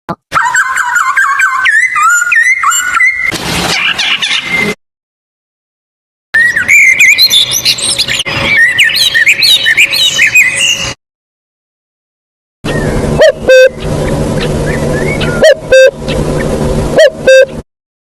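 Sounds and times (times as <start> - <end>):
small birds chirping: 6.4 - 11.0, 12.7 - 16.6
low steady hum: 12.7 - 17.6.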